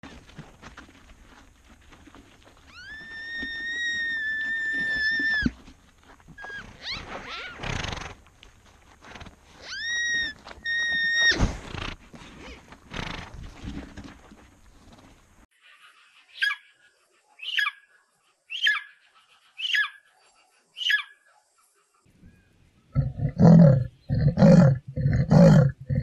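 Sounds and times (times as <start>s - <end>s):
rough noisy animal calls: 2.6s - 5.6s, 22.9s - 26.0s
high-pitched animal calls: 2.7s - 5.6s, 6.4s - 7.6s, 9.6s - 11.4s, 18.5s - 20.1s, 20.8s - 21.2s.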